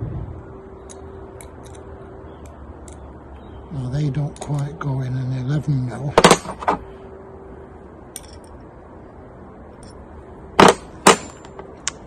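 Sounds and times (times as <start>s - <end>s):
low background noise: 0.0s - 12.0s
metal bolts clinking: 8.1s - 8.6s.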